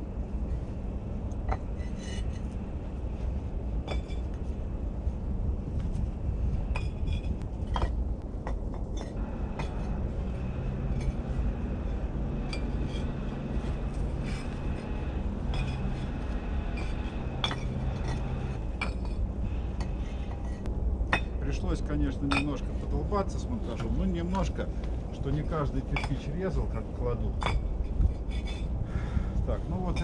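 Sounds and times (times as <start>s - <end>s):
low steady rumble: 0.0s - 30.0s
bricks clinking: 6.7s - 10.0s, 12.3s - 19.2s.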